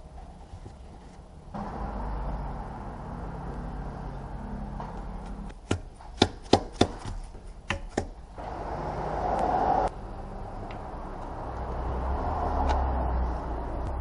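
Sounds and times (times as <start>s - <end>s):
vehicle running noise: 0.0s - 6.2s, 8.2s - 14.0s
sharp knocks: 5.5s - 8.2s.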